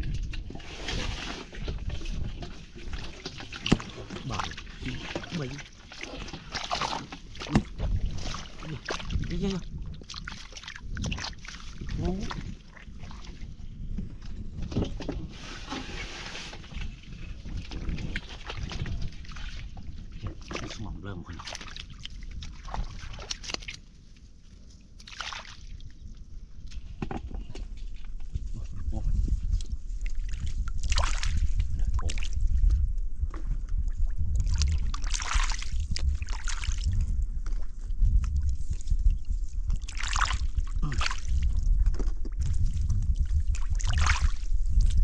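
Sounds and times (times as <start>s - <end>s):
steady low rumble: 0.0s - 14.9s, 25.7s - 45.0s
water sloshing and splashing: 0.0s - 45.0s.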